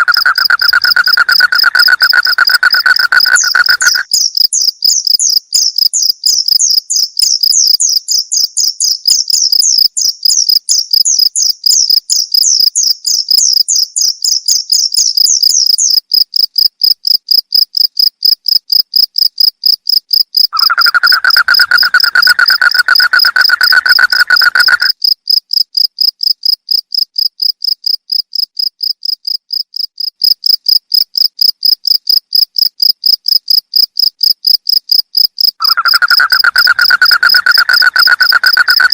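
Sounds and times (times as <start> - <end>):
higher chirping: 0.0 - 4.1, 35.6 - 38.9
crickets chirping: 0.0 - 38.9.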